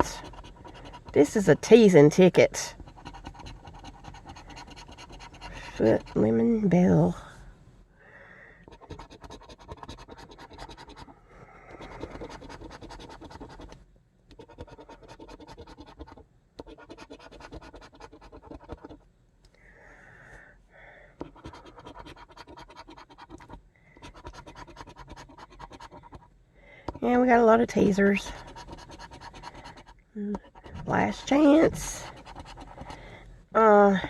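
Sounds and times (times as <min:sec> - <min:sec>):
lottery ticket being scratched: 0:00.0 - 0:06.4, 0:08.7 - 0:11.1, 0:11.8 - 0:19.0, 0:21.2 - 0:26.2, 0:27.1 - 0:33.0.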